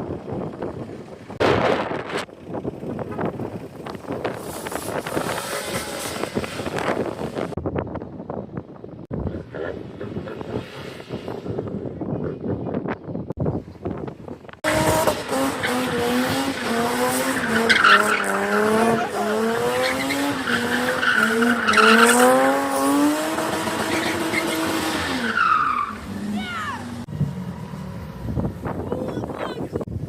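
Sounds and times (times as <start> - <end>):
car engine revving hard: 4.4 - 7.6, 14.6 - 28.6.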